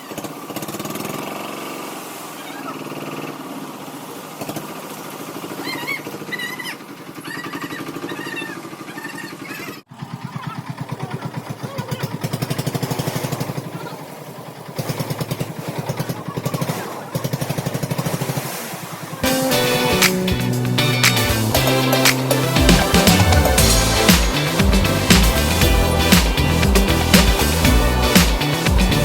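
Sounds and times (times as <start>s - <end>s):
construction machinery engine: 19.0s - 29.0s.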